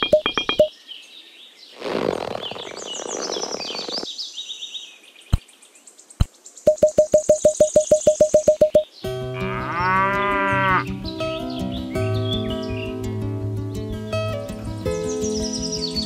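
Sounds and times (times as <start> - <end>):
rapid even ticking: 0.0 - 0.7, 6.7 - 8.8
sharp clicks: 0.0 - 0.7, 6.2 - 8.8
small birds chirping: 0.0 - 13.1, 13.9 - 16.0
rustling noise: 1.7 - 4.1.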